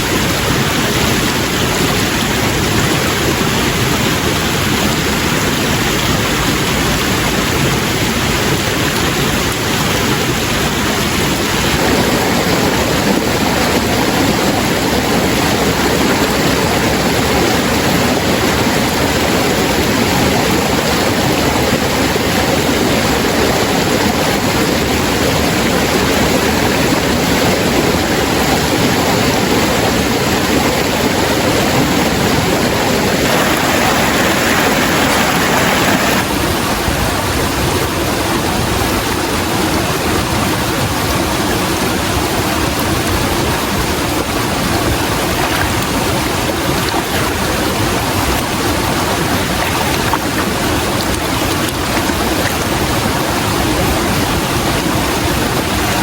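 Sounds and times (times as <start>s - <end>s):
loud rushing noise: 32.5s - 36.6s.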